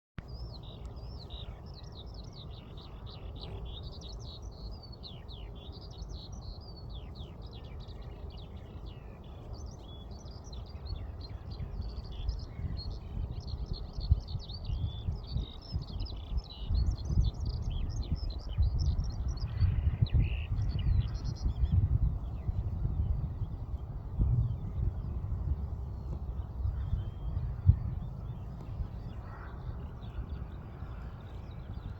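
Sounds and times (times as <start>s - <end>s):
birds chirping and singing: 0.2s - 31.9s
low rumble: 16.7s - 31.9s.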